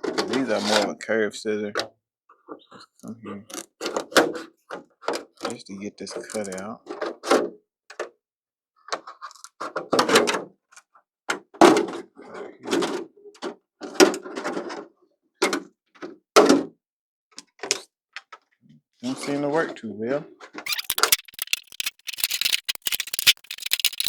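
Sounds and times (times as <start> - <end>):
scissors snipping stiff plastic: 20.7 - 24.0.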